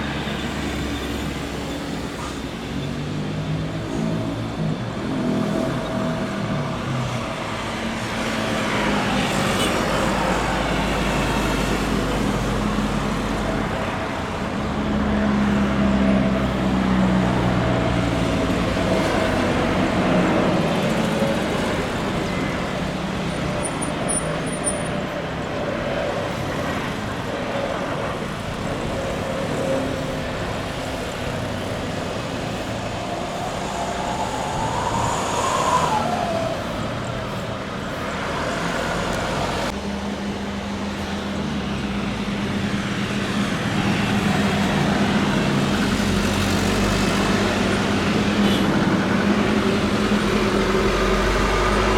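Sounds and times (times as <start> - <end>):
jet engines rumbling and whining: 0.0 - 51.9.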